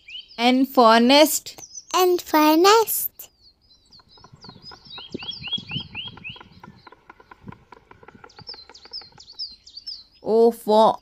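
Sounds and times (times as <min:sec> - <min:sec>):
small birds chirping: 0:00.0 - 0:11.0
faint irregular clicks: 0:03.9 - 0:10.0
low rustling: 0:03.9 - 0:10.0.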